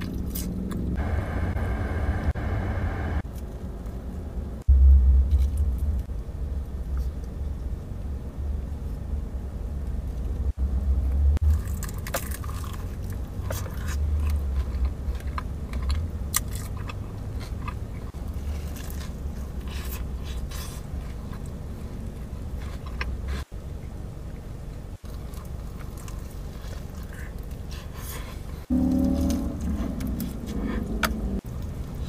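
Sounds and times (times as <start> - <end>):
crunching and chewing: 0.0 - 1.0, 11.4 - 32.0
low rumble: 0.0 - 16.1, 28.6 - 32.0.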